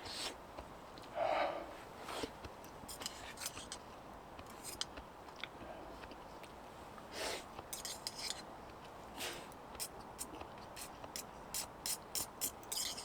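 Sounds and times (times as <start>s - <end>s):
scrape or rustle: 0.0s - 0.4s, 2.0s - 3.8s, 4.5s - 4.9s, 7.1s - 8.5s, 9.1s - 10.9s, 11.6s - 13.0s.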